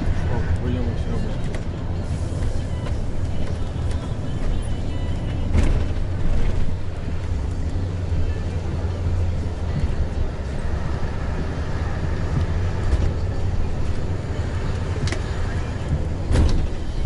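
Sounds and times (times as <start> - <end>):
bus engine rumble: 0.0 - 17.0.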